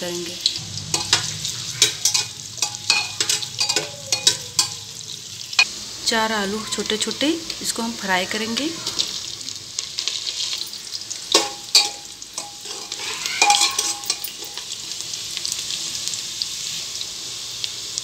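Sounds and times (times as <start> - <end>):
potatoes sizzling in oil: 0.0 - 18.0
spoon clinking against metal pot: 0.9 - 4.9, 10.6 - 14.7.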